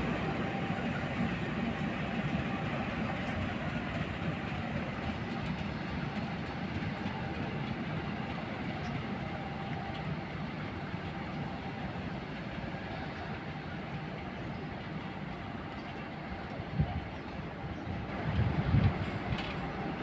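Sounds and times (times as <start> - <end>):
train rumbling on track: 0.0 - 20.0.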